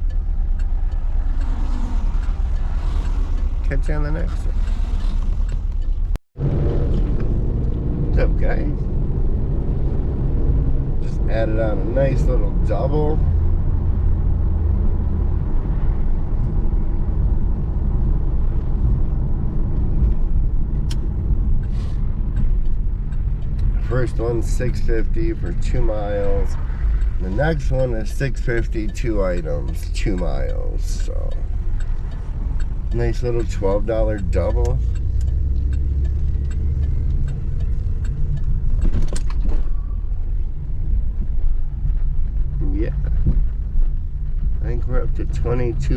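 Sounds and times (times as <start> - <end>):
faint ticks: 0.0 - 6.2, 19.8 - 39.9
car engine rumble in cabin: 0.0 - 45.9
road noise: 0.0 - 45.9
sharp click: 20.8 - 27.9, 28.5 - 39.9.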